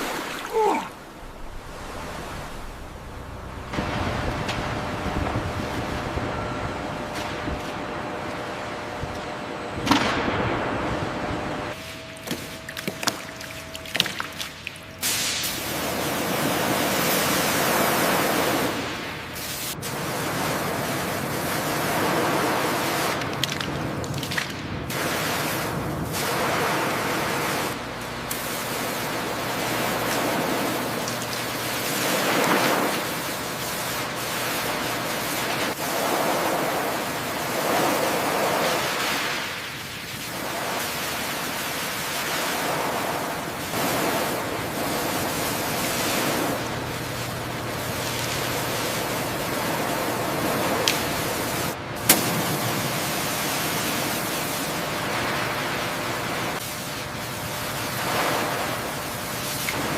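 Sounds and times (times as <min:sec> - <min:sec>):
sea waves washing: 0:00.0 - 0:06.5, 0:28.5 - 0:59.9.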